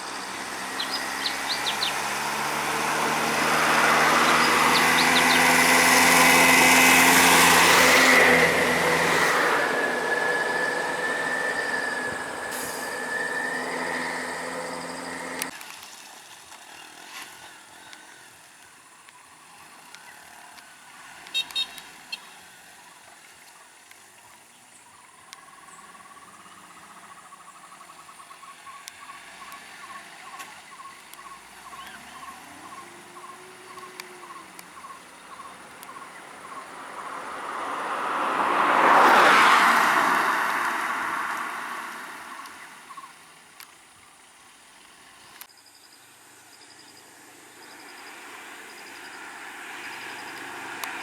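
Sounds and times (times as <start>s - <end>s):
road vehicle passing: 0.0s - 15.5s, 28.6s - 43.5s, 47.2s - 51.0s.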